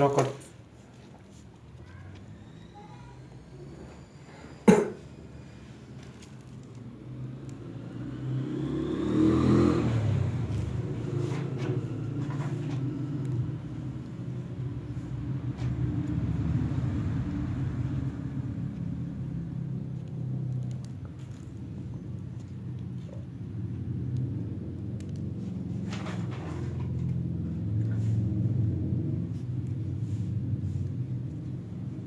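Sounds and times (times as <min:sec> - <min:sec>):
low motor rumble: 0:09.8 - 0:32.0.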